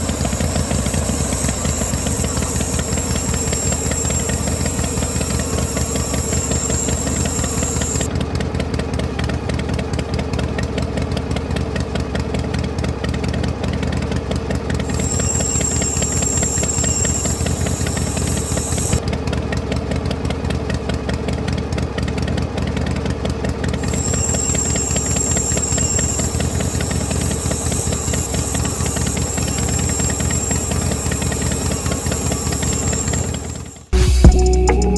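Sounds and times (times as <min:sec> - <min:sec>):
high whine: 0:00.0 - 0:08.1, 0:14.8 - 0:19.0, 0:23.8 - 0:34.9
small electric motor running: 0:00.0 - 0:08.1, 0:14.7 - 0:19.0, 0:23.6 - 0:34.0.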